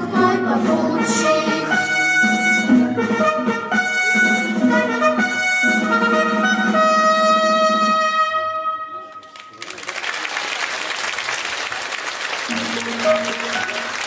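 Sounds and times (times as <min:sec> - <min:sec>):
brass playing held notes: 0:00.9 - 0:09.4, 0:12.5 - 0:14.0.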